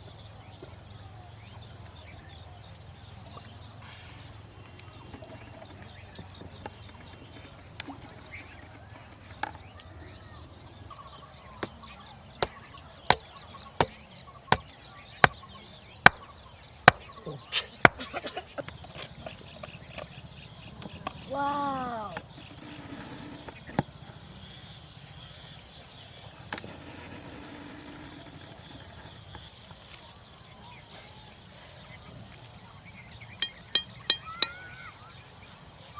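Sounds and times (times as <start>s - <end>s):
small knocks: 11.6s - 15.4s, 16.0s - 16.3s
sharp chopping strikes: 12.4s - 16.3s, 16.9s - 18.1s.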